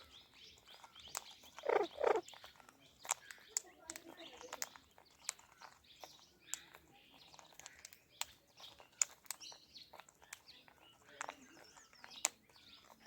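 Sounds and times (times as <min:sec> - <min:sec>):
soft bird chattering: 0:00.0 - 0:13.0
parakeet chirping: 0:01.6 - 0:02.2.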